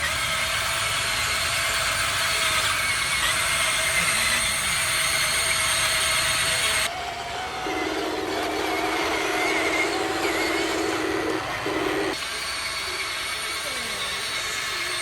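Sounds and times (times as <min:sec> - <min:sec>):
electric motor whirring: 0:01.8 - 0:13.6.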